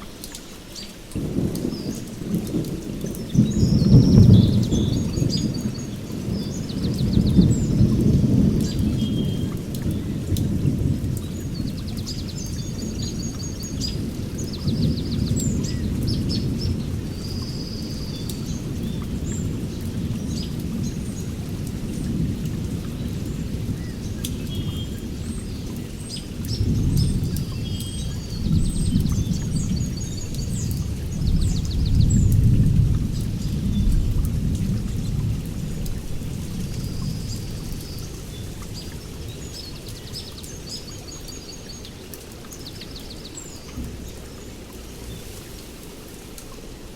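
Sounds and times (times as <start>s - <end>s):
steady rain: 0.0s - 46.9s
rolling thunder: 1.2s - 39.4s.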